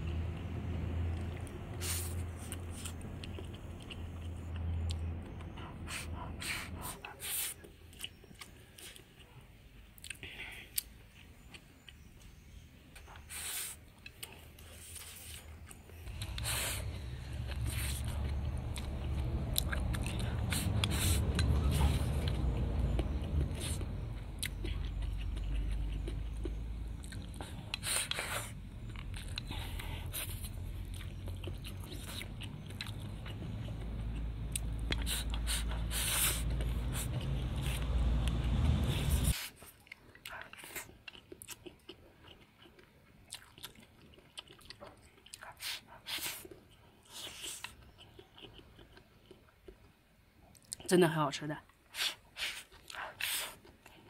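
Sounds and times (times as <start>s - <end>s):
person chewing food: 0.1s - 50.9s, 51.7s - 54.0s
steady low rumble: 15.9s - 39.4s.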